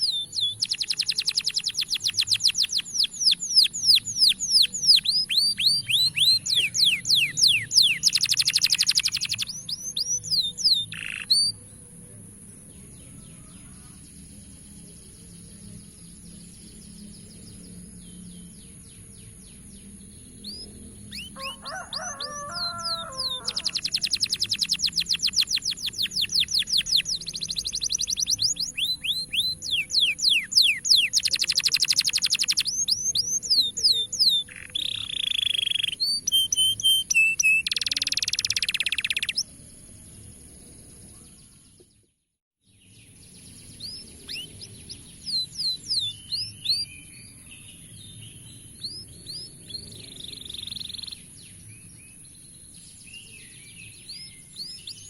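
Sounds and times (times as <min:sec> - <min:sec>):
canary trilling and chirping: 0:00.0 - 0:11.5, 0:20.5 - 0:39.4.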